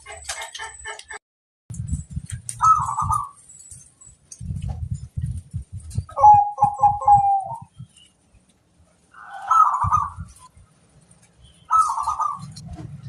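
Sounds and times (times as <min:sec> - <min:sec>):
dove cooing: 0:02.6 - 0:03.4, 0:06.0 - 0:07.8, 0:09.2 - 0:10.5, 0:11.7 - 0:12.6.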